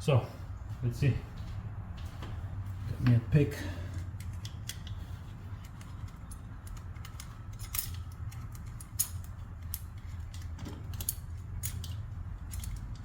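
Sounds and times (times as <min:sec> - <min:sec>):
steady low hum: 0:00.0 - 0:13.0
hand tools clicking on metal: 0:03.9 - 0:13.0.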